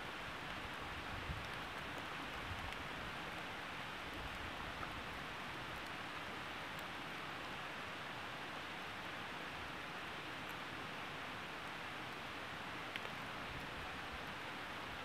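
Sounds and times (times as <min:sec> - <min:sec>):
fire crackles: 0:00.1 - 0:07.8.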